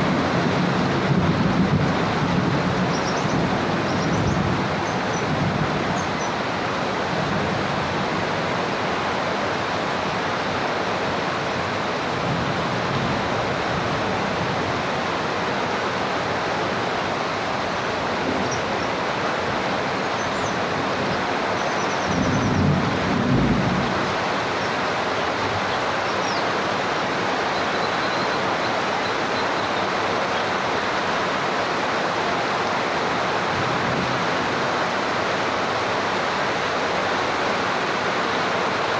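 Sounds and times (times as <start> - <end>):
thunder rumbling: 0.0 - 6.0, 22.1 - 24.5
heavy rain hissing: 0.0 - 38.9.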